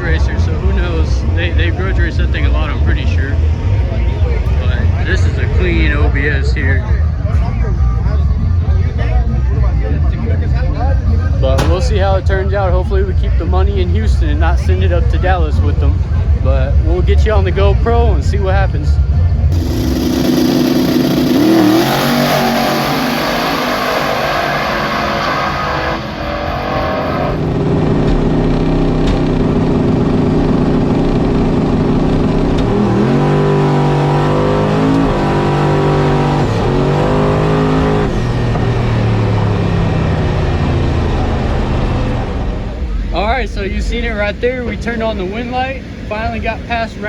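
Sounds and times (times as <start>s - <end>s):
truck engine running hard: 0.0s - 47.0s.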